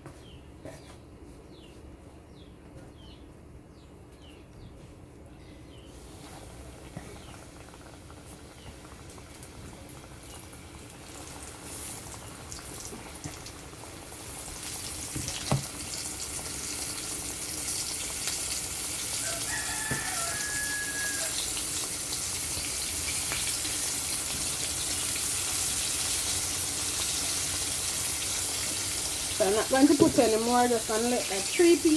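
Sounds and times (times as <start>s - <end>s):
chicken frying in hot oil: 6.0s - 31.9s
faint crow-like call: 19.2s - 21.6s.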